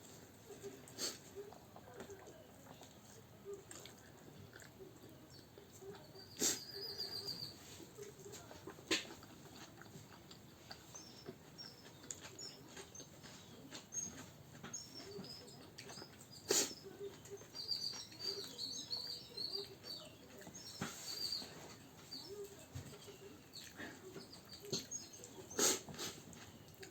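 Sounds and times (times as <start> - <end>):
high bird chirps: 13.9 - 22.4.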